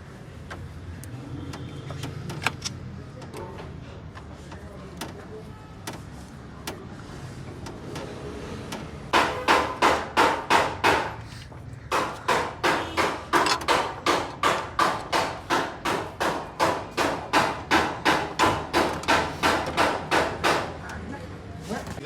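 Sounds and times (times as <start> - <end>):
hammer blows: 9.1 - 11.2, 11.9 - 20.7.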